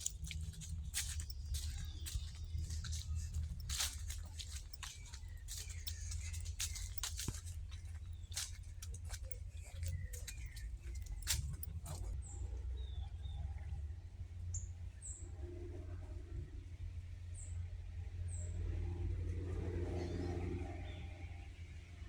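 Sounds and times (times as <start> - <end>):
small birds chirping: 0.0 - 13.4
steady low rumble: 0.0 - 22.0.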